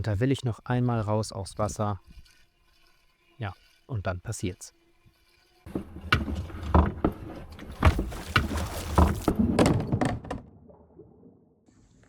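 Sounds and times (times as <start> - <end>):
water sloshing: 5.6 - 11.4
kayak hull knocking: 5.7 - 10.5.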